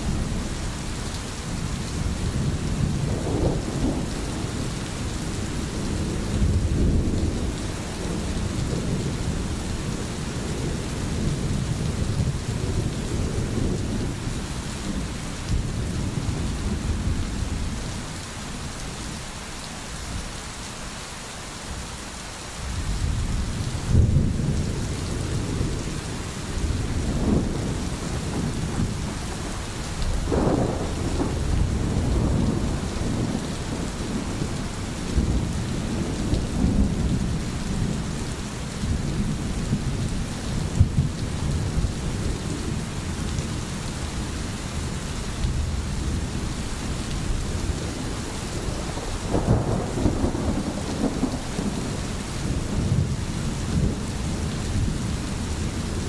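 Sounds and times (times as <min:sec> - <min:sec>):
rain hissing: 0:00.0 - 0:56.0
rolling thunder: 0:01.7 - 0:17.9, 0:22.8 - 0:38.1, 0:44.7 - 0:56.0.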